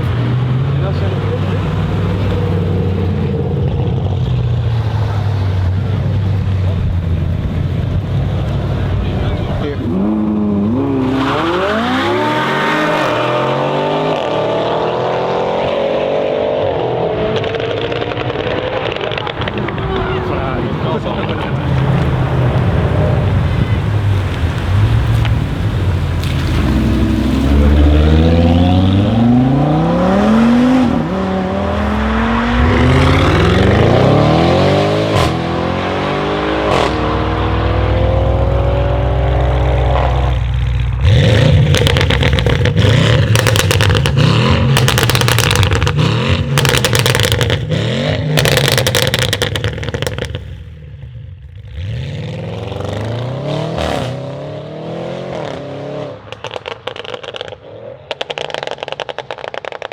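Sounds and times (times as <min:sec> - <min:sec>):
car engine accelerating: 0:00.0 - 0:59.9
exhaust crackles and pops: 0:17.3 - 0:53.1, 0:56.2 - 0:59.9.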